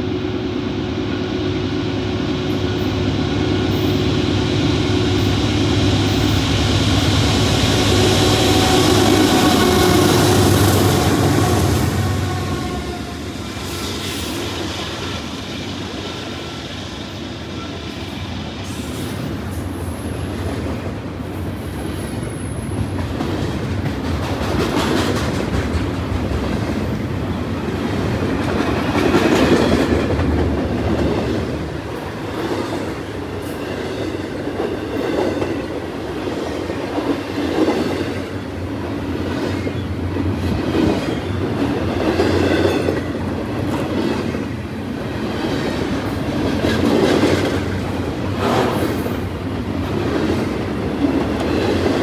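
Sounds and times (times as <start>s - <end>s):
train wheels clattering over rails: 18.6s - 52.0s.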